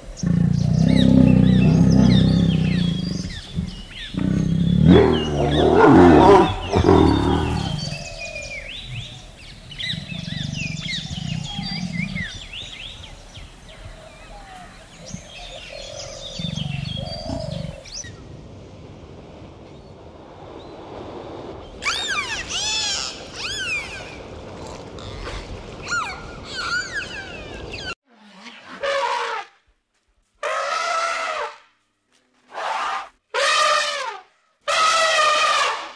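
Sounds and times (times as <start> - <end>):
tiger growling: 0.0 - 13.4, 14.2 - 18.0
birds chirping: 0.0 - 18.2, 21.6 - 28.0
dolphins whistling: 21.8 - 24.2, 25.8 - 28.0.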